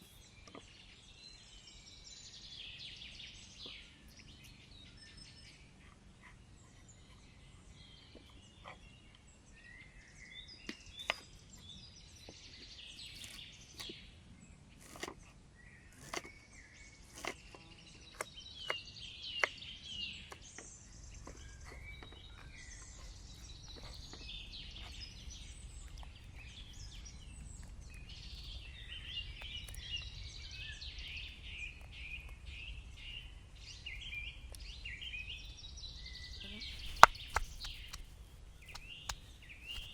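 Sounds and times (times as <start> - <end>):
birds singing and chirping: 0.0 - 39.9
sharp clicks or knocks: 36.7 - 39.9.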